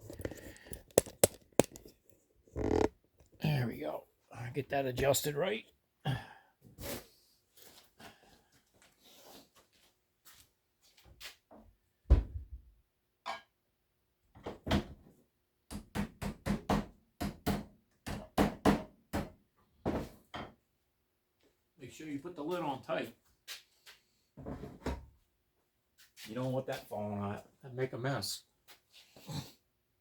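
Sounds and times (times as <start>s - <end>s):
handling clicks: 0.2s - 1.9s
lid knocking onto metal can: 0.2s - 1.9s.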